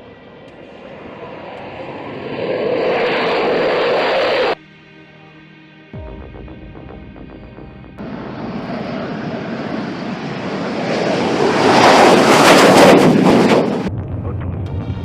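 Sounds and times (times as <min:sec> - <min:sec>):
jet aircraft roar: 0:00.0 - 0:04.6, 0:07.6 - 0:15.0.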